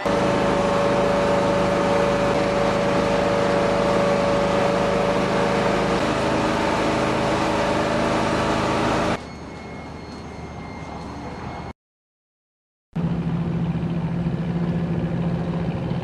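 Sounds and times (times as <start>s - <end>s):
engine running: 0.0s - 9.2s, 13.0s - 16.0s.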